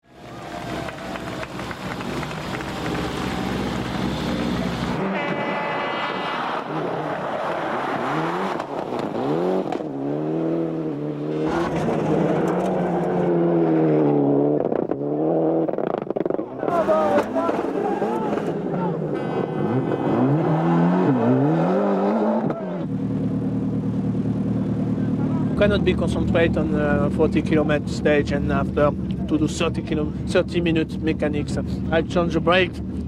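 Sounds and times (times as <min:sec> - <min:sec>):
rally car engines revving: 0:00.1 - 0:33.0.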